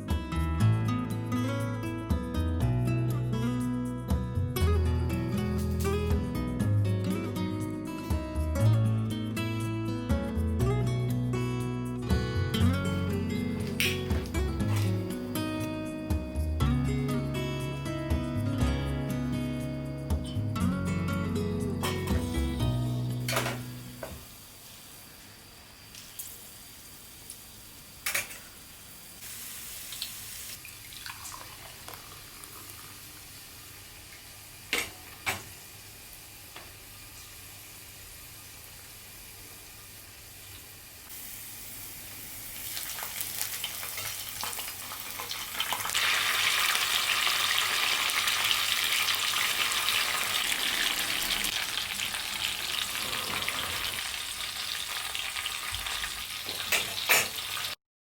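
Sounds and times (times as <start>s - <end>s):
food sizzling in oil: 12.9s - 16.0s, 21.8s - 57.8s.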